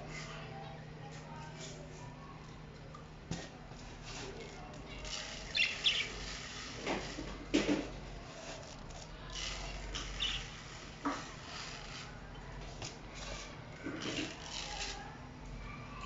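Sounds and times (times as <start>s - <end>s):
pet birds chirping: 5.4s - 6.3s, 10.0s - 10.6s.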